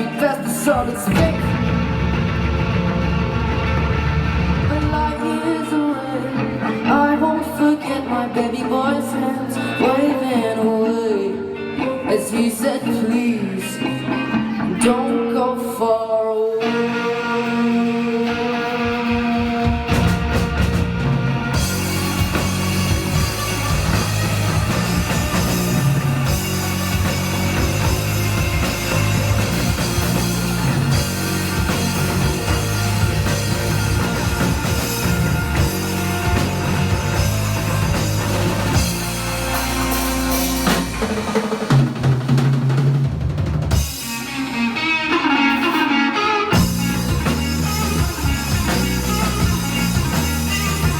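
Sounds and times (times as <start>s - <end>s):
drum kit: 0.0s - 5.4s, 17.4s - 50.9s
bass guitar: 0.0s - 50.9s
electric guitars: 0.0s - 50.9s.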